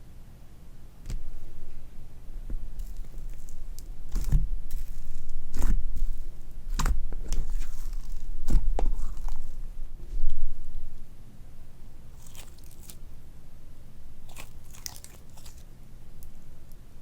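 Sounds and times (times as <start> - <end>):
slime squeaks: 2.8 - 9.6, 12.1 - 13.0, 14.2 - 15.6
slime squishing and popping: 2.8 - 9.6, 12.1 - 13.0, 14.2 - 15.6.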